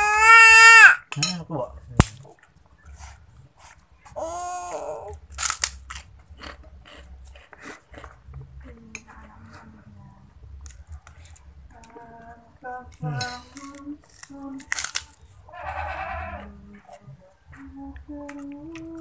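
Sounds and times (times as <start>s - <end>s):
man chewing: 2.4s - 8.8s
man humming: 13.0s - 13.5s.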